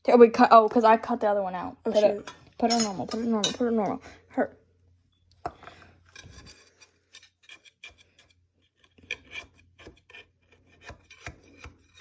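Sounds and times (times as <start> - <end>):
utensil scraping cake in metal pan: 6.0 - 12.0.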